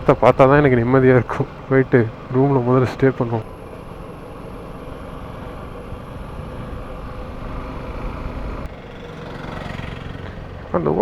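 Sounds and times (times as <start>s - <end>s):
wind noise: 0.0s - 8.7s
motorcycle engine: 0.0s - 11.0s.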